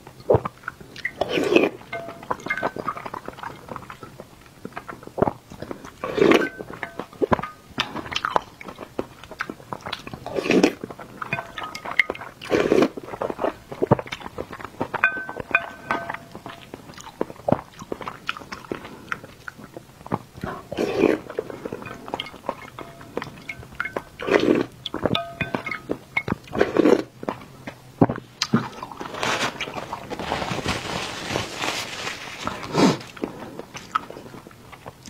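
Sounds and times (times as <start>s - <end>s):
wet chewing clicks and smacks: 0.0s - 29.0s, 33.1s - 35.0s.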